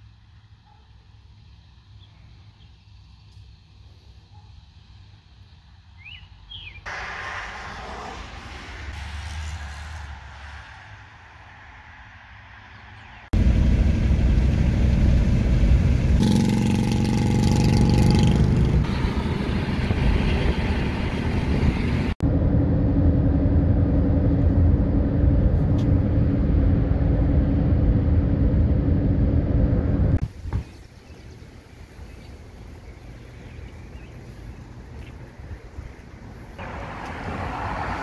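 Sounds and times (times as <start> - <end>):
vehicle engine and road rumble: 0.0 - 38.0
steady low hum: 13.4 - 36.6.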